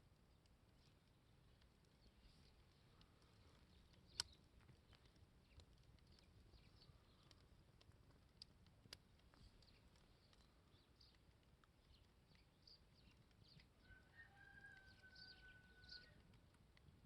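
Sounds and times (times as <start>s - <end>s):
campfire crackling: 0.0s - 17.0s
sharp fire pops: 3.8s - 13.7s.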